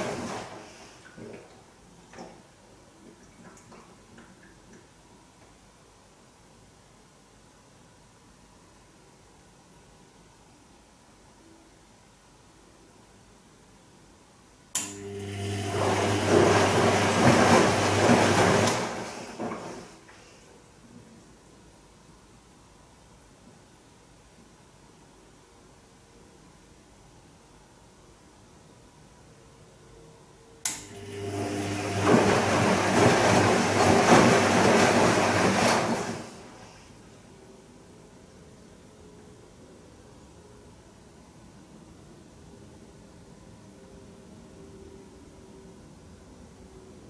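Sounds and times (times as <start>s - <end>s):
washing machine drain pump humming: 0.0s - 4.8s, 14.8s - 20.3s, 30.7s - 37.2s.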